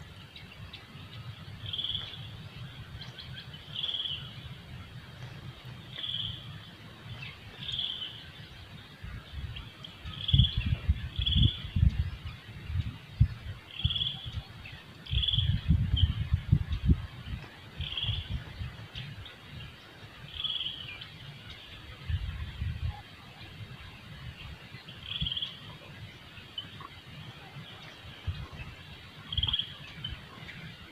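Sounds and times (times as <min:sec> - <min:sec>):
forest ambience: 0:00.0 - 0:30.9
bird high call: 0:13.6 - 0:16.2, 0:24.9 - 0:30.8.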